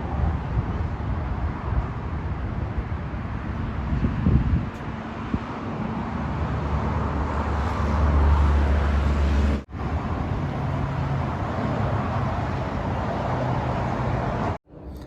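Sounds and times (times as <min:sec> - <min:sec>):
road traffic noise: 0:00.0 - 0:15.0
passing car engine hum: 0:05.1 - 0:14.6.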